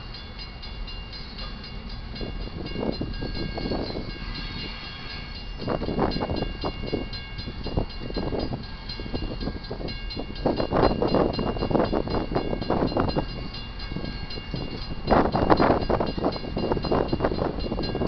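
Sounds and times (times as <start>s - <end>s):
freight train rumble: 0.0s - 18.0s.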